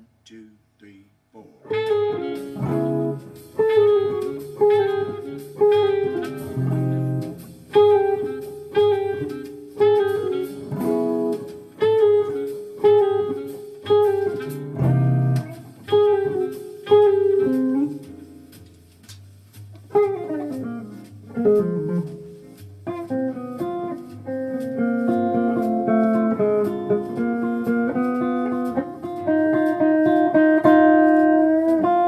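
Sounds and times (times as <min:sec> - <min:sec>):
guitar playing slow jazz: 0:01.6 - 0:32.0.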